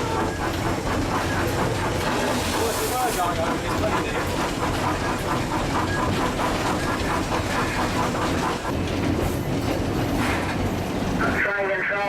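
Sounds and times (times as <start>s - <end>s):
train wheels on track: 0.0s - 12.0s.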